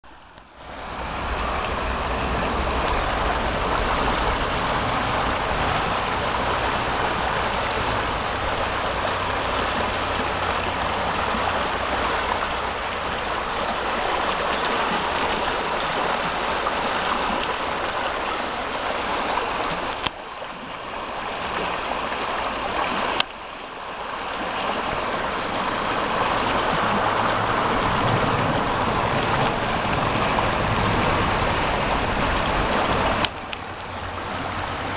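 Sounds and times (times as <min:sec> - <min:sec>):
river water rushing: 0:00.0 - 0:34.9
click: 0:19.9 - 0:20.2.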